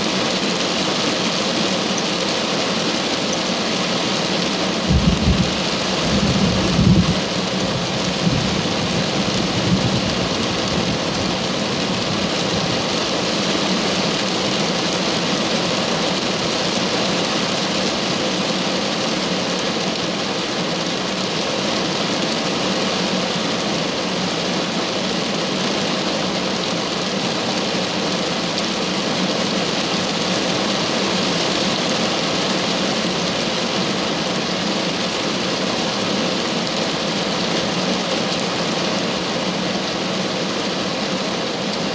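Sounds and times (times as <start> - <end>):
rain downpour: 0.0 - 41.9
thunder rumble: 4.8 - 11.4.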